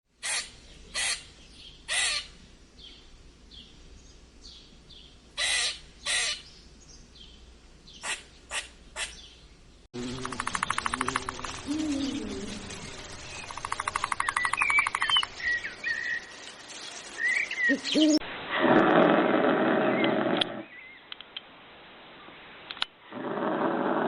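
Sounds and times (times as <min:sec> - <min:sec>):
harsh bird calls: 0:00.2 - 0:02.4, 0:05.4 - 0:06.6, 0:07.9 - 0:18.2
faint bird chirping: 0:00.3 - 0:18.2
rapid pulsing bird trill: 0:10.0 - 0:18.2.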